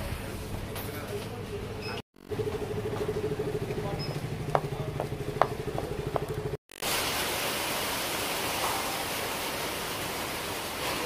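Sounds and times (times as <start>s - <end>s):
pulsing vehicle hum: 2.2s - 6.6s
heavy rain hissing: 6.8s - 11.0s.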